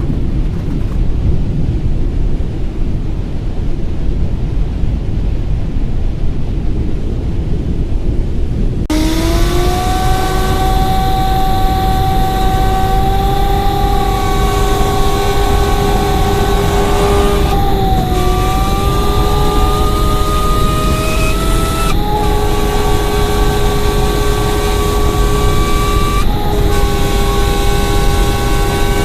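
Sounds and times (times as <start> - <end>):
low rumbling noise: 0.0 - 29.0
vehicle whine at speed: 8.8 - 29.0.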